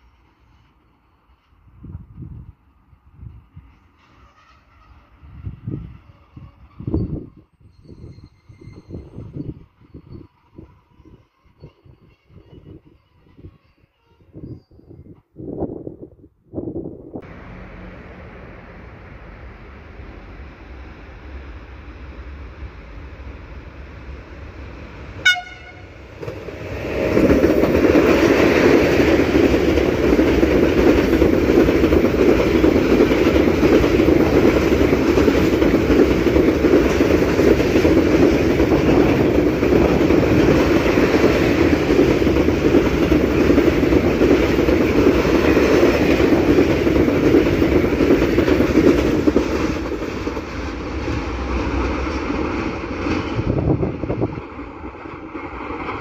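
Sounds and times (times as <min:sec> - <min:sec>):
train wheels rumbling on rails: 0:00.0 - 0:13.6, 0:17.2 - 0:56.0
short train horn toot: 0:04.0 - 0:07.0, 0:25.2 - 0:26.0.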